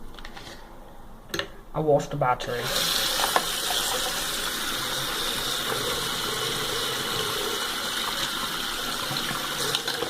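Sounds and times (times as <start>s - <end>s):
tap water splashing into sink: 9.0s - 10.0s.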